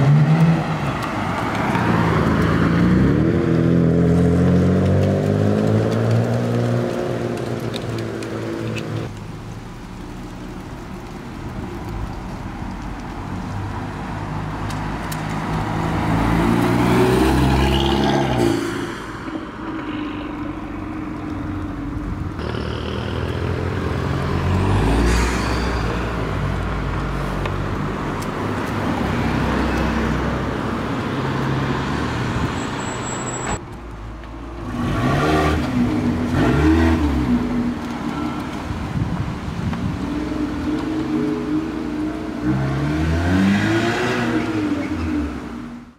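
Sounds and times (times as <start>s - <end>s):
car engines revving past: 14.2s - 21.5s, 22.2s - 32.8s, 34.6s - 45.9s.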